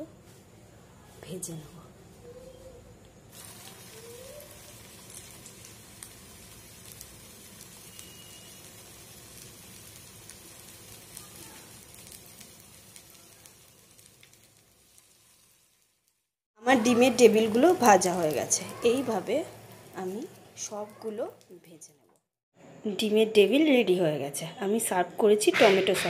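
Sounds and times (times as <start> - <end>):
egg chop sizzling in hot oil: 3.3 - 21.5
oil popping and crackling: 3.3 - 21.6.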